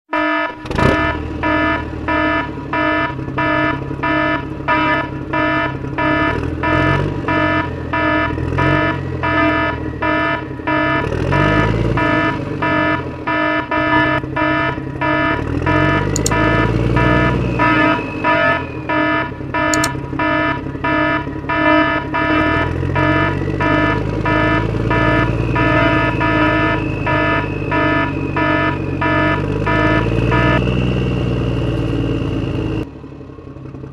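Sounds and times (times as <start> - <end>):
truck reversing beeper: 0.1 - 33.8
diesel engine revving: 0.6 - 33.9.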